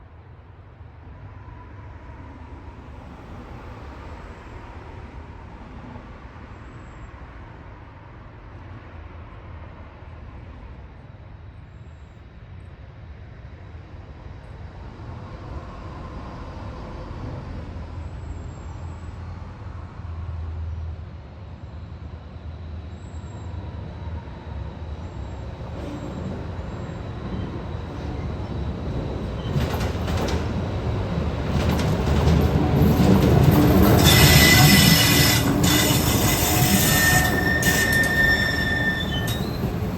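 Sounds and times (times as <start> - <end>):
diesel locomotive rumble: 25.0 - 39.9
train wheels clattering on rails: 25.7 - 39.9.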